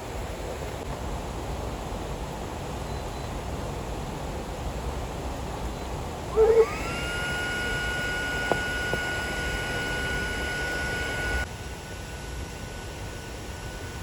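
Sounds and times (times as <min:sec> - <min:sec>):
high-pitched whine: 0:05.7 - 0:14.0.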